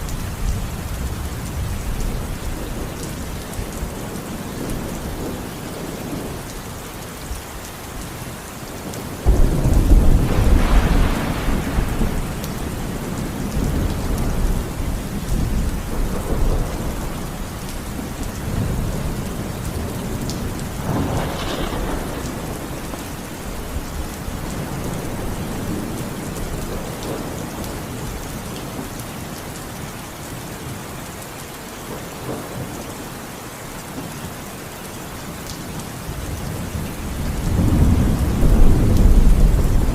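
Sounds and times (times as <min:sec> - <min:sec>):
steady rain falling: 0:00.0 - 0:39.9
thunder clap rumbling: 0:08.8 - 0:28.1, 0:36.3 - 0:39.9.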